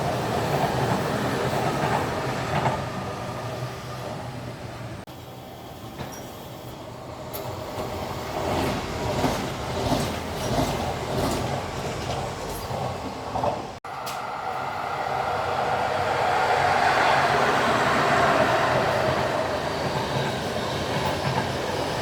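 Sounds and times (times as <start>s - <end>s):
train rumbling on tracks: 0.0s - 22.0s
steady rushing noise: 13.8s - 20.4s.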